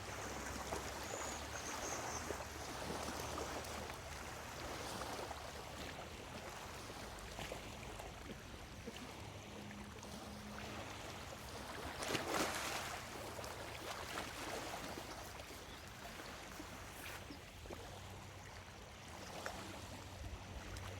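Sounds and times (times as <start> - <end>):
waves lapping against shore: 0.0 - 20.9.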